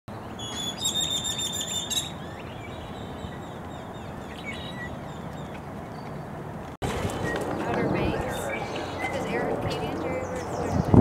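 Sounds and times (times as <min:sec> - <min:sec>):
small birds trilling and chirping: 0:00.1 - 0:11.0.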